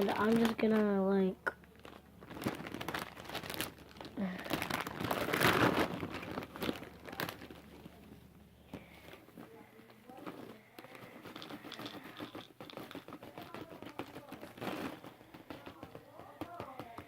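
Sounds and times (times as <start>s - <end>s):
snack bag crinkling: 0.0s - 17.0s.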